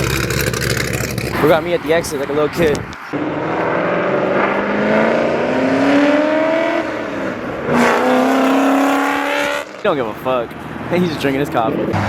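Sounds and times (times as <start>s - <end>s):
car engine accelerating hard: 0.0s - 9.9s.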